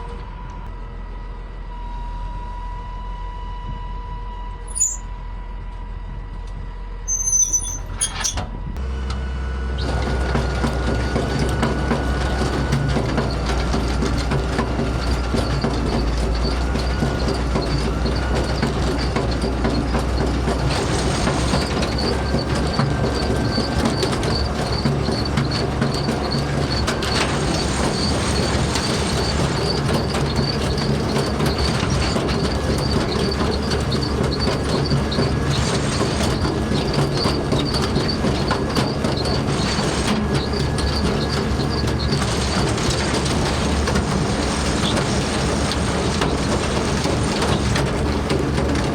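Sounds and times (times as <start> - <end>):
farm machinery rumbling: 4.5 - 48.9
rapid high-pitched squeak: 4.7 - 5.1, 7.1 - 8.5, 14.6 - 48.9.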